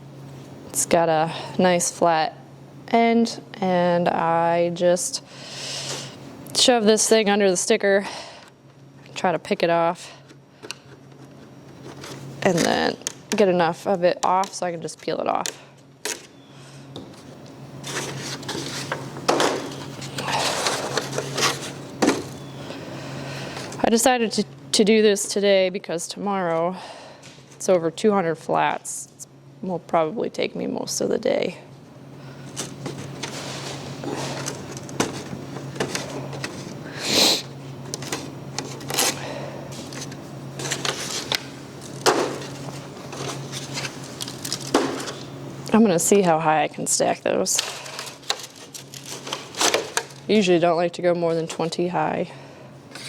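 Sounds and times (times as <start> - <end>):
plastic scraping rustle: 17.8 - 22.4, 38.0 - 45.3, 47.6 - 50.2
plastic crackling: 39.8 - 45.3, 47.5 - 50.3.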